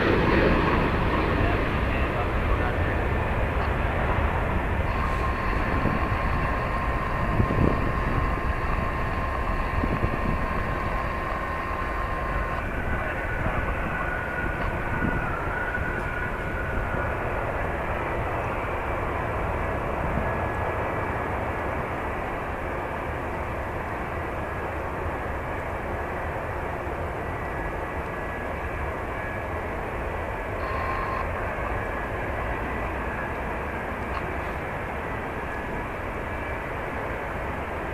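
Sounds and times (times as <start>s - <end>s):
wind buffeting microphone: 0.0s - 21.5s
jet engine noise: 0.0s - 37.9s.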